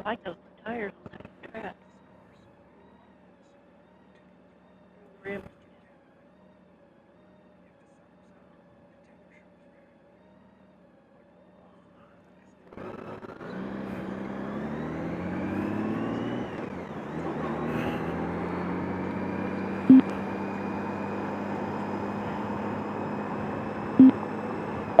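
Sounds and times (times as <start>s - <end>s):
vehicle engine starting and running: 12.6s - 25.0s.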